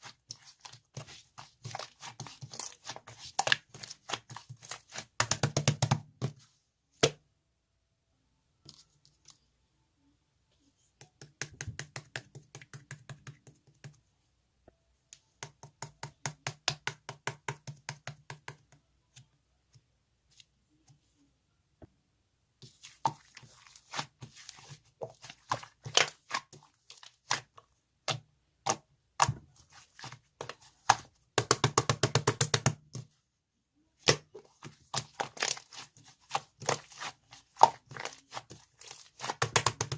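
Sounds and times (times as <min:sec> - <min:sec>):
rapid tapping and crinkling: 0:34.2 - 0:39.9.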